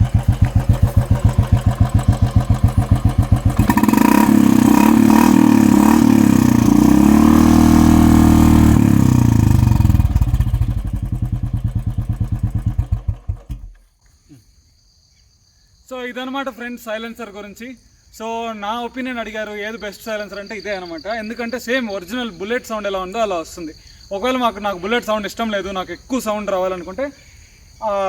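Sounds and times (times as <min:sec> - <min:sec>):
motorcycle engine idling and revving: 0:00.0 - 0:13.9.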